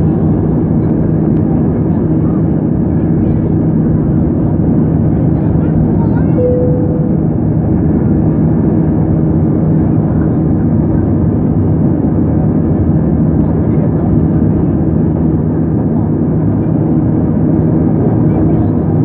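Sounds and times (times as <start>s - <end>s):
airliner cabin engine drone: 0.0s - 19.0s
constant low hum: 0.0s - 19.0s.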